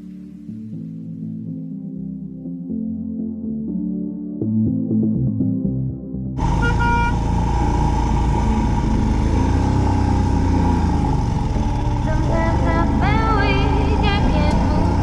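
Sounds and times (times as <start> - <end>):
ambient music: 0.0 - 15.0
motorcycle engine running: 6.4 - 15.0
wind and road noise: 6.4 - 15.0
short high horn toot: 6.6 - 7.2.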